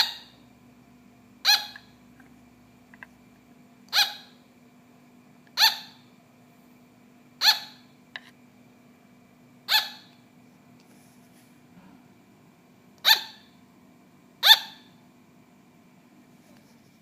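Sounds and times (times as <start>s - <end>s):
sugar glider barking: 0.0s - 0.4s, 1.4s - 2.0s, 3.9s - 4.4s, 5.5s - 6.1s, 7.4s - 8.0s, 9.6s - 10.2s, 13.0s - 13.6s, 14.4s - 15.0s.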